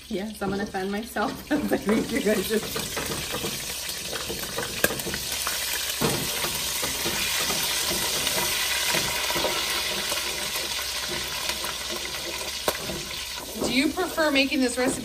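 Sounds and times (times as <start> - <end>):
grease popping and crackling: 0.0 - 15.0
sausage sizzling in fat: 0.0 - 15.0.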